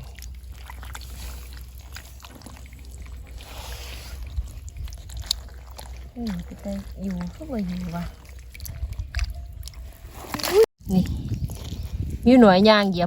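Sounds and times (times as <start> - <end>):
low rumble: 0.0 - 10.2
muddy water splashing: 0.0 - 13.0.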